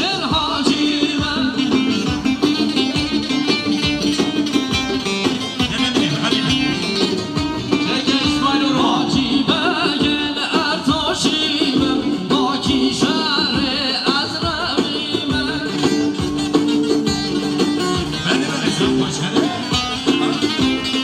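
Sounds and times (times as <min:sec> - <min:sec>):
person singing: 0:00.0 - 0:02.9, 0:05.6 - 0:16.3, 0:18.0 - 0:21.0
steady drum beat: 0:00.0 - 0:21.0.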